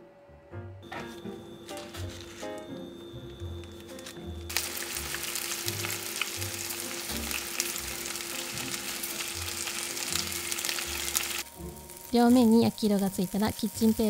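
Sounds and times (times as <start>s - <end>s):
small crackles of frying: 3.8s - 14.0s
fish sizzling in oil: 4.5s - 14.0s.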